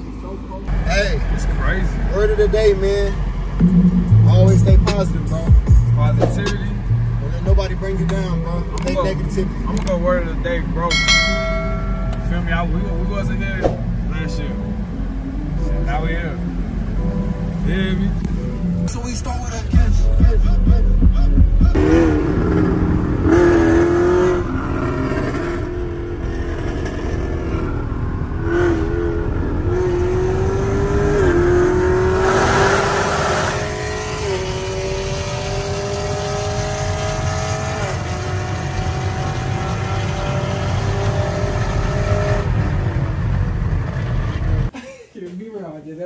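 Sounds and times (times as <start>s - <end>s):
car engine accelerating: 0.0s - 44.7s
road rumble: 0.0s - 44.8s
rush of noise: 3.6s - 5.3s.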